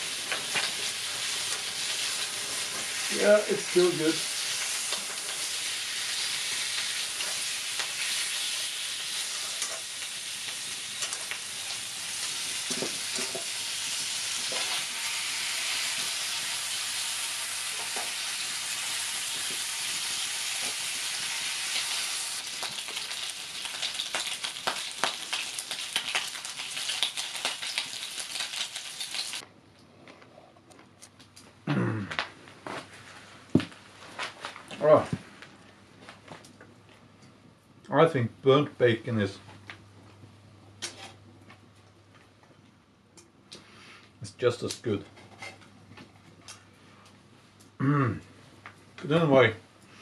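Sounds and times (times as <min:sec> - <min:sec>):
bacon sizzling in a pan: 0:00.0 - 0:29.4
fat popping and crackling: 0:22.4 - 0:32.4.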